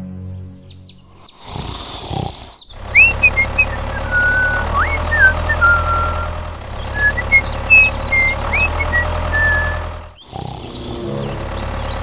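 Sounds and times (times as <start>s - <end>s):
birds chirping: 0.3s - 12.0s
low rumble: 10.8s - 12.0s.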